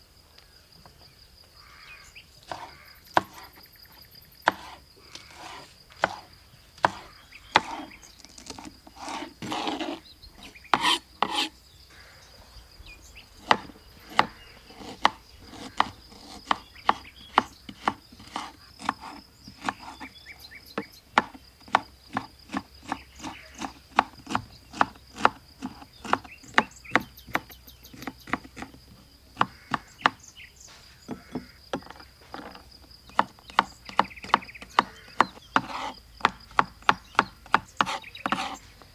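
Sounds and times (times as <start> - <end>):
knife scraping on board: 8.5 - 11.5, 37.8 - 38.7
knife chopping on wooden board: 10.8 - 11.5.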